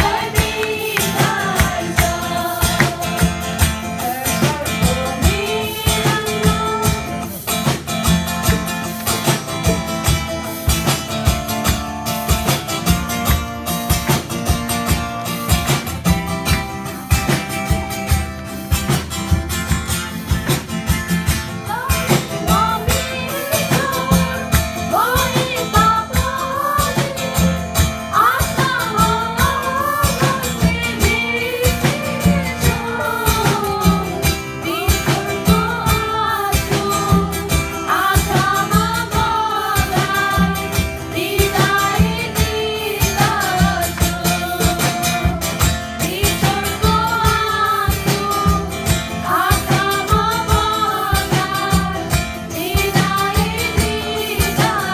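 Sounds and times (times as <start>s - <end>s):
person singing: 0.0s - 7.5s, 21.7s - 54.9s
steady beat: 0.0s - 54.9s
strummed guitar: 0.0s - 54.9s.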